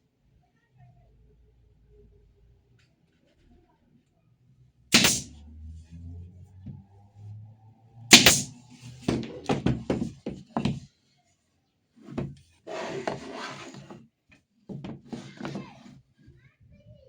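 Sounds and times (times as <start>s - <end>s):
tool scraping on wood: 5.0s - 5.3s, 8.1s - 8.5s, 12.7s - 14.0s.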